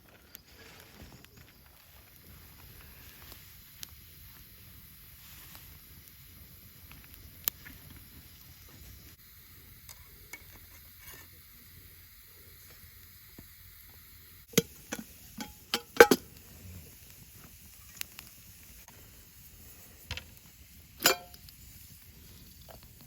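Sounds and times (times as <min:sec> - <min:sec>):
cooking gear clinking and knocking: 0:14.5 - 0:16.3, 0:21.0 - 0:21.4.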